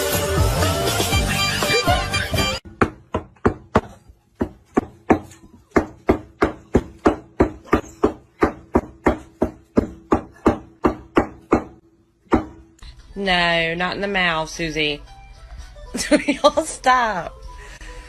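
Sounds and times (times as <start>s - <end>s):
cleaver chopping on wooden board: 2.7s - 12.6s.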